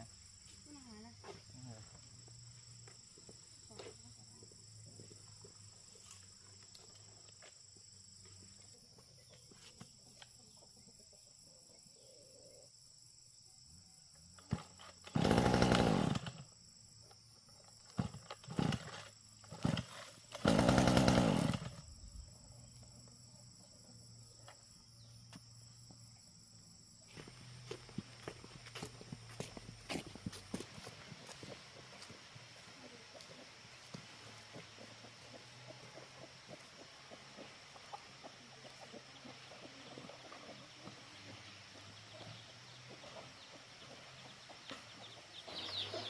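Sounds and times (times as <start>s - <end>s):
small petrol engine firing and dying: 14.4s - 16.6s, 17.8s - 22.0s.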